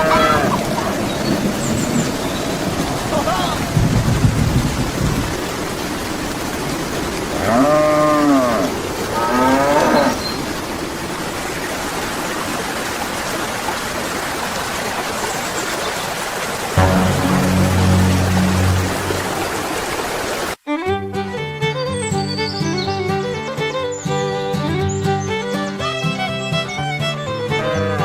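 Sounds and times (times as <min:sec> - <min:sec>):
steady rain-like hiss: 0:00.0 - 0:20.6
cow mooing: 0:07.4 - 0:10.1.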